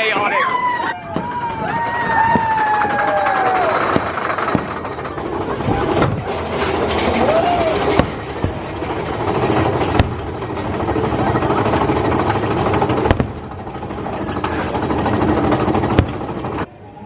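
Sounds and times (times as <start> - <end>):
roller coaster rumble and clatter: 0.0 - 17.0
sharp knocks: 7.9 - 10.8, 15.5 - 16.6.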